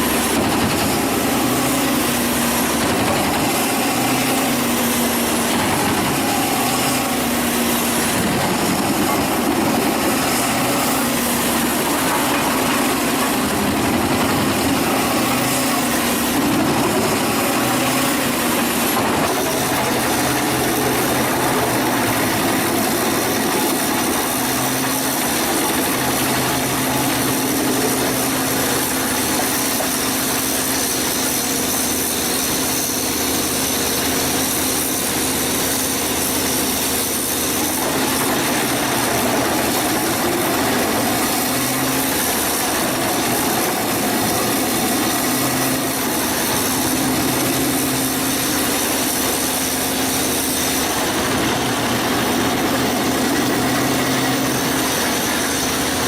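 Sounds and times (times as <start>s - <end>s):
wood chipper engine running: 0.0s - 56.0s.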